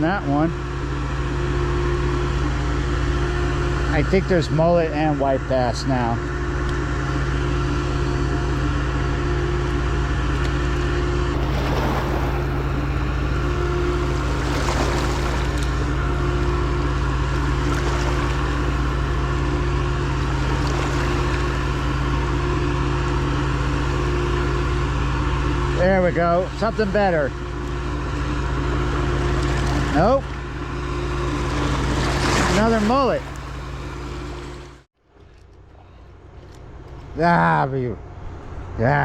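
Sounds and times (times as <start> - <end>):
low engine drone: 0.0 - 39.0.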